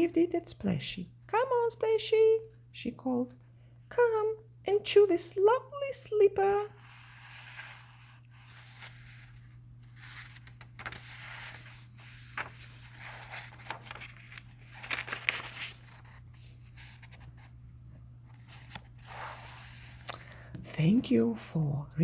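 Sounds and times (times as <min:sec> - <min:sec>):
steady low hum: 0:00.0 - 0:22.0
book pages rustling: 0:06.7 - 0:17.6, 0:18.2 - 0:21.3.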